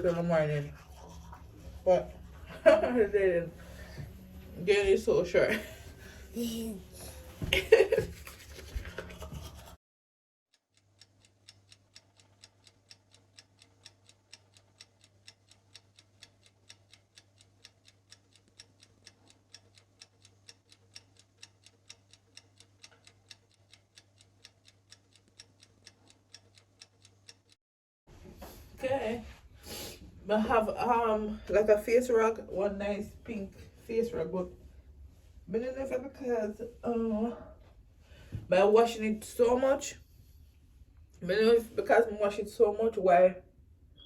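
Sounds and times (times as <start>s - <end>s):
clock-like ticking: 10.5s - 27.6s.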